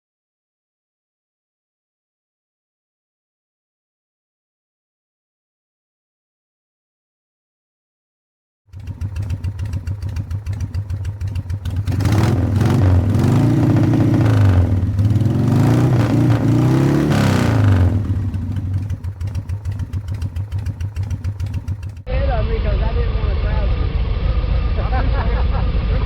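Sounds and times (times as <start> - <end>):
motorcycle engine idling and revving: 8.7 - 22.1.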